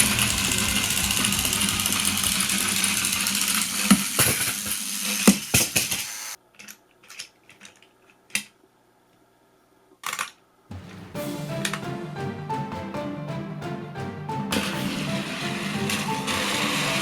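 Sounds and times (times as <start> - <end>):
toy train motors whirring: 0.0 - 7.8, 14.8 - 17.0
plastic clattering: 6.6 - 8.5, 10.0 - 10.4.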